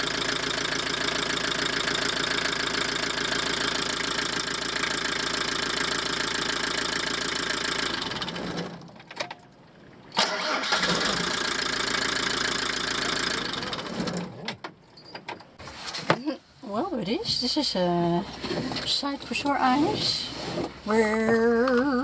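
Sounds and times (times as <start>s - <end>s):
van engine idling: 0.0s - 9.0s, 9.6s - 14.4s
clicks: 21.0s - 22.0s.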